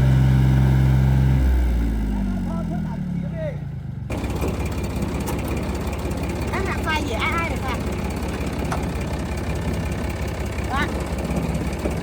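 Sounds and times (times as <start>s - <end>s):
engine winding down: 0.0s - 12.0s
rough noisy running engine: 0.0s - 12.0s.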